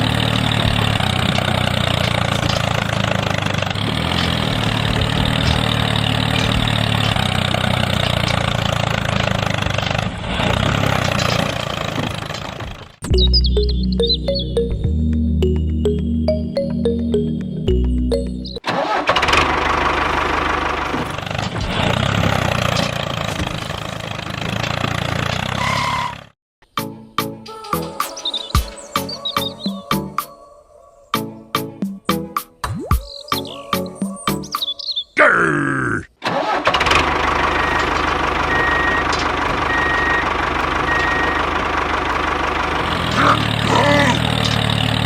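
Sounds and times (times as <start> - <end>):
small engine running: 0.0 - 12.9, 18.8 - 26.3, 36.4 - 45.0
music snatch: 13.0 - 18.6.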